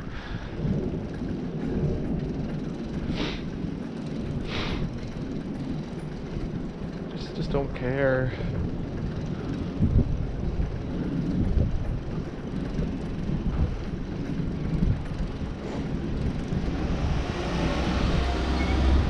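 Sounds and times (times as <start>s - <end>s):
road noise: 0.0s - 19.0s
wind rumble: 0.0s - 19.0s.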